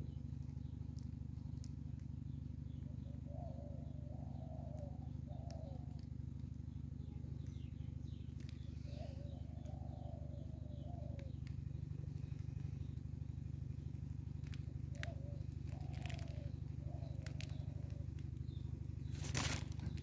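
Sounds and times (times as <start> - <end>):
faint high bird chirps: 0.0 - 20.0
steady low rumble: 0.0 - 20.0
bird cooing: 2.8 - 6.2, 7.0 - 12.7, 14.4 - 20.0.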